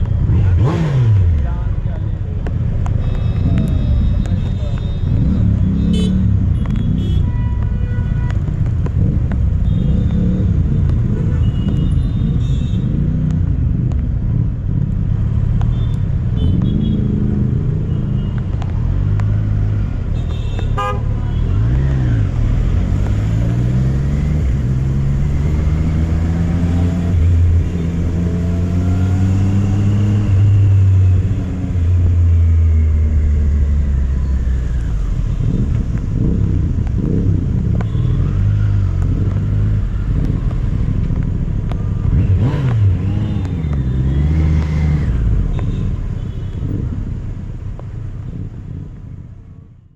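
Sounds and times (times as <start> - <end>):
motorcycle engine shifting gears: 21.4 - 48.9.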